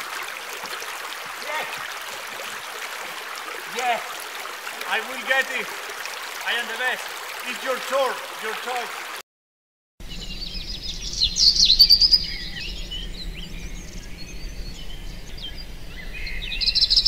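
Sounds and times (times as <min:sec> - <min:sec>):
songbirds singing and chirping: 0:10.0 - 0:17.0.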